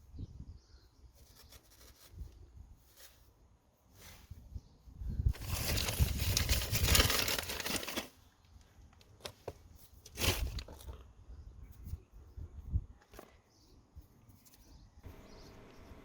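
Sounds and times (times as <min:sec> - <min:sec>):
crinkling handling noise: 0:01.2 - 0:04.4, 0:05.3 - 0:11.1.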